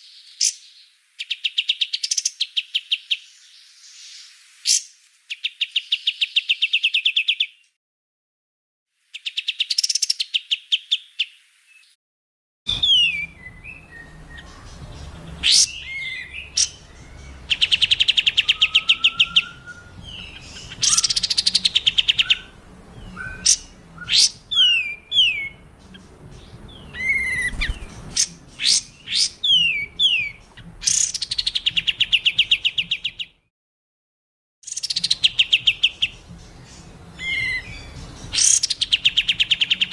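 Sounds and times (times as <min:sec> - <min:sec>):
recorded songbird trills: 0:12.7 - 0:33.4, 0:34.6 - 0:39.9
sharp falling whistles: 0:18.4 - 0:19.9.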